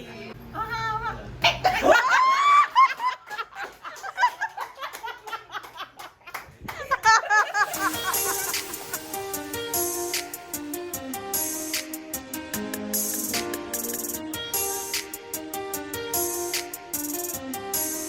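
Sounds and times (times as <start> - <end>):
high-pitched squeal of laughter: 1.4 - 3.0
group of people laughing: 1.6 - 9.0.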